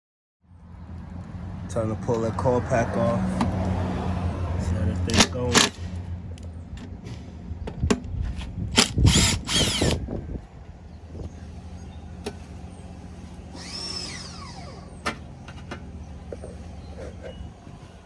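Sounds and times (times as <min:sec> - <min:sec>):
power drill whirring: 0:08.8 - 0:10.1, 0:13.4 - 0:15.2.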